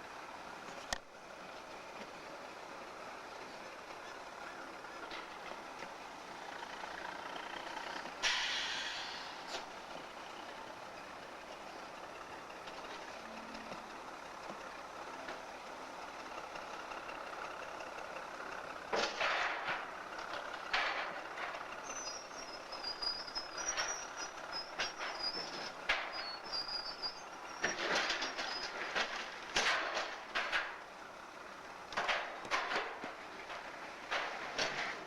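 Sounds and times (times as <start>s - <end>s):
locomotive engine: 0.0s - 35.0s
sharp metal clanks and knocks: 19.0s - 19.9s, 20.7s - 21.6s, 27.6s - 30.8s, 31.9s - 35.0s.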